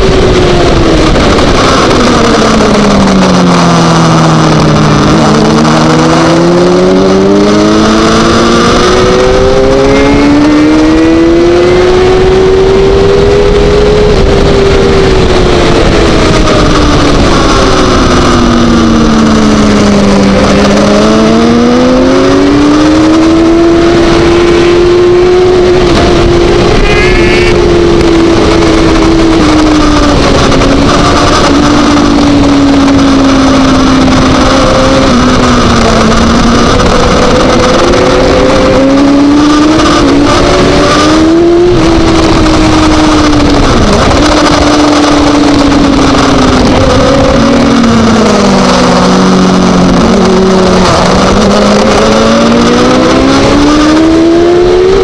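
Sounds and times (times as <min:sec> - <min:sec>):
motorcycle engine at speed: 0:00.0 - 0:55.0
wind rush on microphone: 0:00.0 - 0:55.0.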